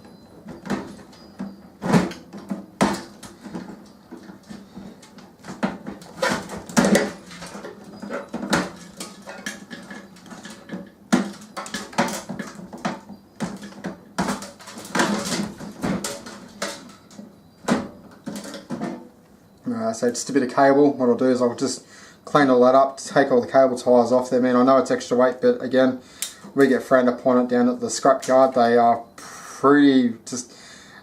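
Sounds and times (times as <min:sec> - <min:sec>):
metal and plastic parts clattering: 0:00.0 - 0:19.2.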